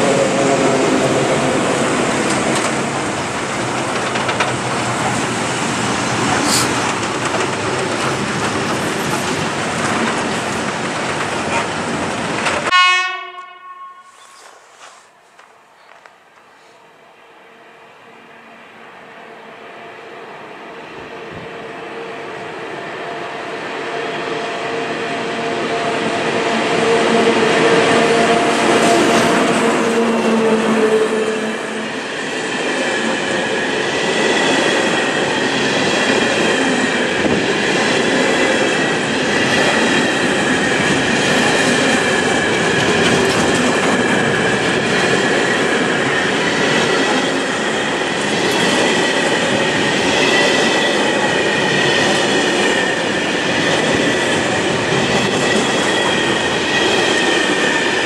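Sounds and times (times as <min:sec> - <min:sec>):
freight train rolling rumble: 0:00.0 - 0:12.7, 0:20.7 - 0:58.0.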